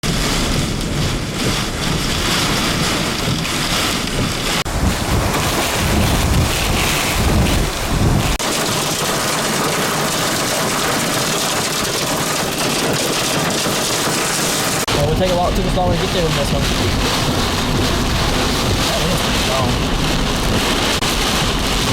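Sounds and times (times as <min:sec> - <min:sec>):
wind buffeting microphone: 0:00.0 - 0:09.3, 0:14.1 - 0:21.9
heavy rain: 0:00.0 - 0:21.9.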